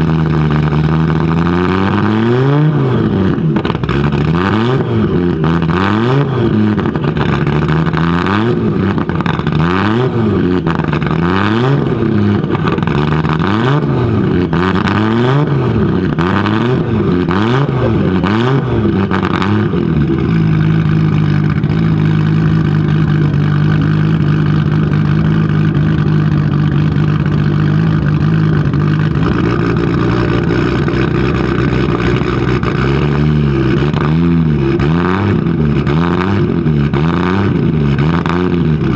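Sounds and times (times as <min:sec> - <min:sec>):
car engine revving: 0:00.1 - 0:38.9
car engine idling: 0:14.0 - 0:34.0.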